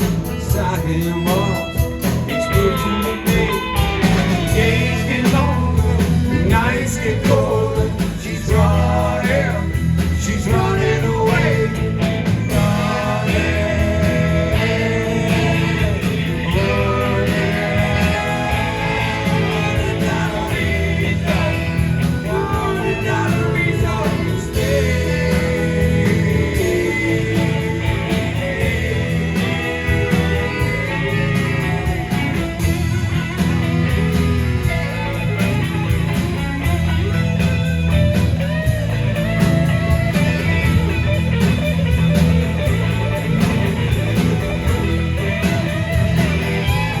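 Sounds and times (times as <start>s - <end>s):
person singing: 0.0s - 31.2s
lead guitar line: 0.0s - 47.0s
live rock band playing: 0.0s - 47.0s.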